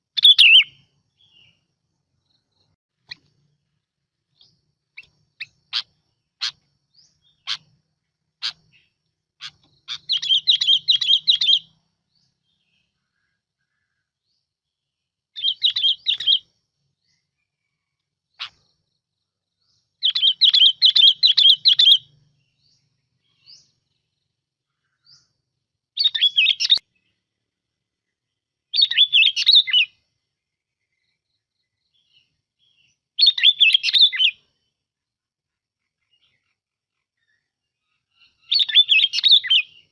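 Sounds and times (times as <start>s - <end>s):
bulbul singing warbled phrases: 0.0s - 1.7s, 4.3s - 17.2s, 19.6s - 25.4s, 26.0s - 27.2s, 28.7s - 30.0s, 30.9s - 34.7s, 38.1s - 39.9s.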